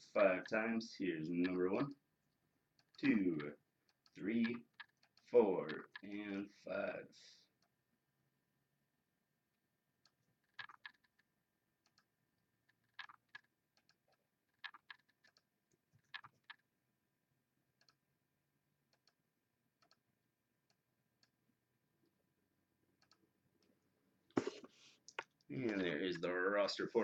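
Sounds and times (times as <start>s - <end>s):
computer mouse and keyboard clicks: 3.9s - 6.2s, 10.0s - 16.7s, 17.8s - 18.0s, 18.9s - 19.2s, 19.8s - 20.0s, 23.0s - 23.7s.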